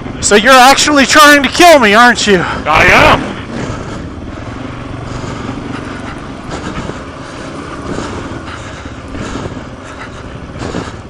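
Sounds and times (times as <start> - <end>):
motorcycle engine at low revs: 2.5 - 11.0.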